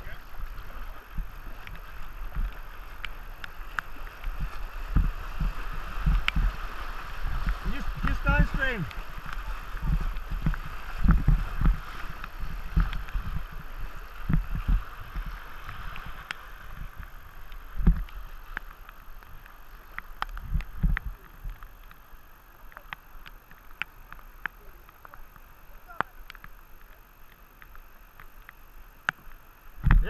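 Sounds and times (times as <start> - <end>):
paddle strokes splashing: 0.0 - 30.0
rushing river current: 0.0 - 30.0.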